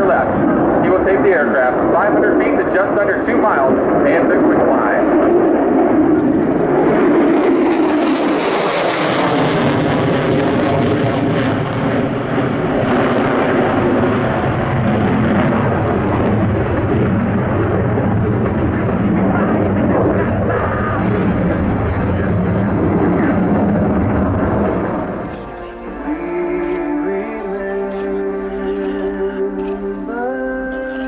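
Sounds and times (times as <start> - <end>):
jet engine roar: 0.0 - 31.0.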